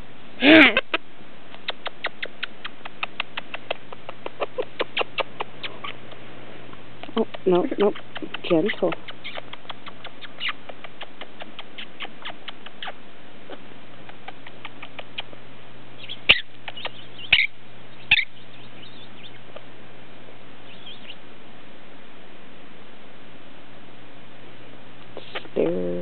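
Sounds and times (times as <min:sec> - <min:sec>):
parrot clicking: 0:01.6 - 0:06.2, 0:07.0 - 0:12.9, 0:14.0 - 0:15.3, 0:16.6 - 0:17.5
parrot chirps: 0:07.9 - 0:13.0, 0:16.0 - 0:19.5, 0:20.6 - 0:21.2.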